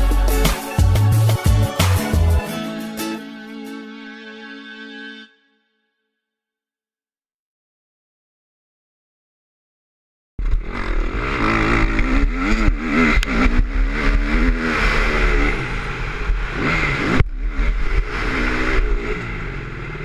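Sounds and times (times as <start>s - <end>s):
motocross bike engine revving: 10.4s - 20.0s.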